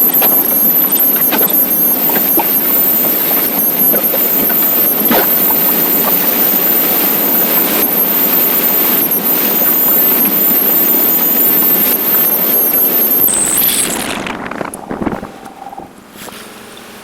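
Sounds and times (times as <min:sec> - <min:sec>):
wind and road noise on motorcycle: 0:13.3 - 0:17.0.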